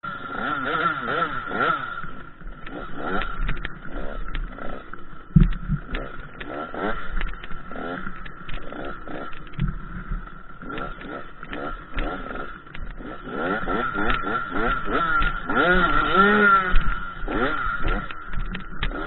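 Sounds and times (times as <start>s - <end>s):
dirt bike engine revving: 0.0s - 19.0s
low thump: 5.3s - 6.0s.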